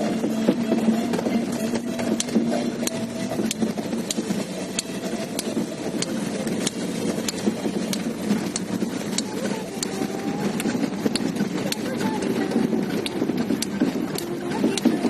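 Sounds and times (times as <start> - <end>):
car running hum: 0.0 - 15.0
sharp repeating tick: 2.1 - 9.9.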